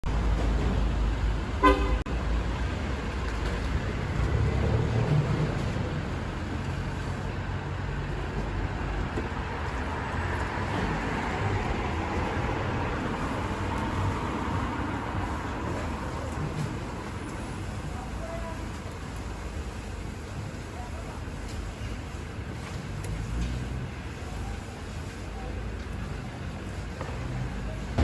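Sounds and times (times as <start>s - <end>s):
street traffic: 0.0s - 28.0s
car horn toot: 1.6s - 2.1s.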